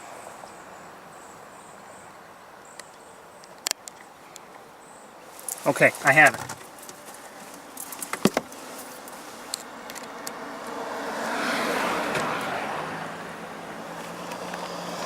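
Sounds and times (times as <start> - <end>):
low engine hum: 5.2 - 15.0
car passing by: 8.4 - 15.0.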